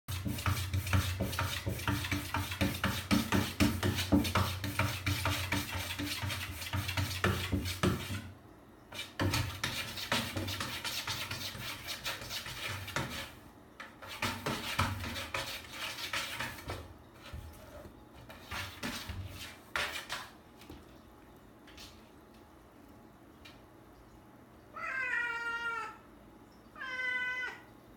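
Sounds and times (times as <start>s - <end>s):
cat scratching and pawing: 0.1s - 8.3s, 9.0s - 20.9s.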